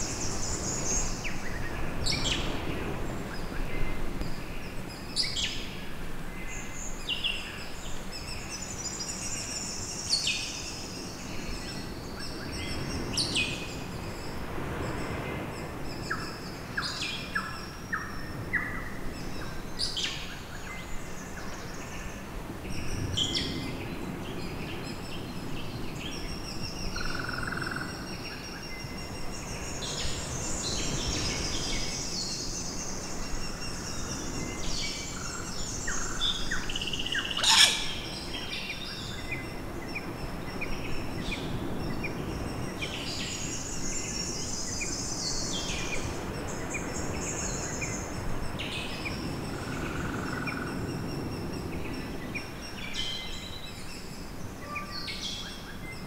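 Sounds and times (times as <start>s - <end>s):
wind hiss: 0.0s - 56.0s
birds calling and chirping: 22.7s - 56.0s.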